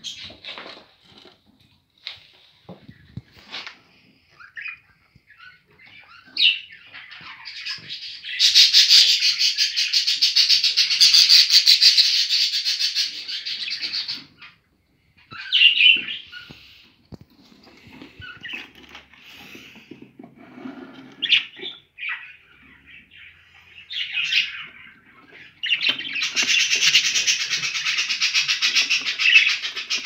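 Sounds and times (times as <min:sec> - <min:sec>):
budgerigars chirping: 0:04.4 - 0:14.6, 0:15.3 - 0:16.9, 0:21.1 - 0:30.0.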